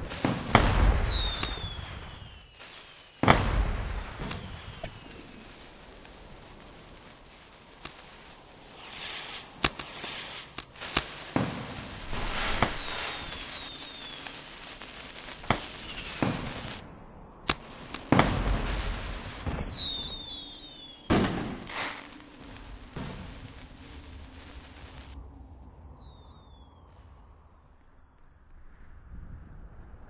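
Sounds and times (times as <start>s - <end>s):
fireworks whistles falling in pitch: 0.0s - 5.4s, 7.8s - 16.7s, 19.4s - 23.6s, 25.7s - 27.0s
fireworks hissing rushes: 0.0s - 16.9s, 17.5s - 25.2s
fireworks bangs: 0.0s - 25.2s.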